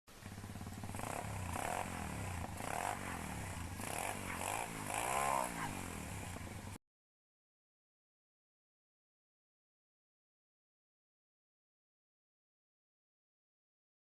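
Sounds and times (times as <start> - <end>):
pit bike engine revving: 0.1 - 6.8.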